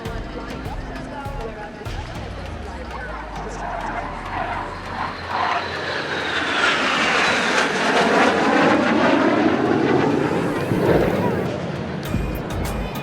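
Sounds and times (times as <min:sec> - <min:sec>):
jet aircraft flying past: 0:02.7 - 0:12.1.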